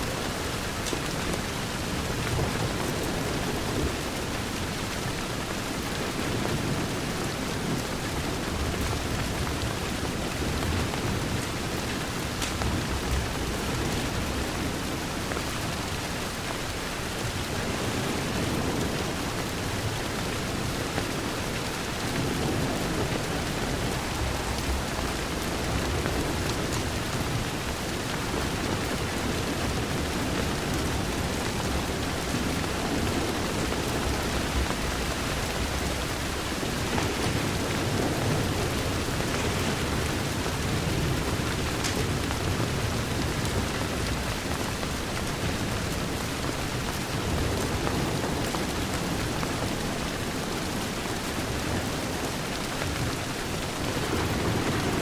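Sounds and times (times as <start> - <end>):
heavy rain on a window: 0.0 - 55.0
distant thunder rumbles: 17.3 - 50.2.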